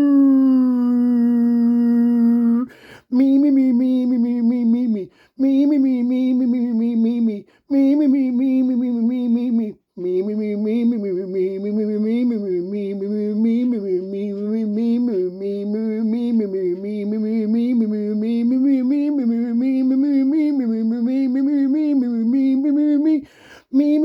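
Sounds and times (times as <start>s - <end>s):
person chanting on one pitch: 0.0s - 15.6s.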